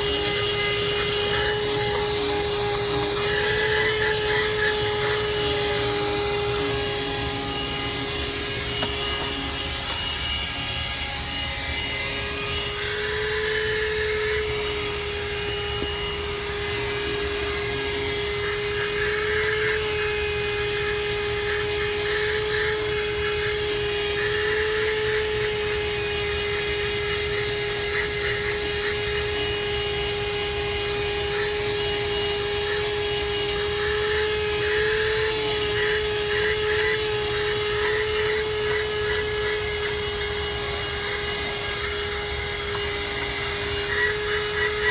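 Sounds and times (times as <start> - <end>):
vacuum cleaner motor whine: 0.0 - 44.9.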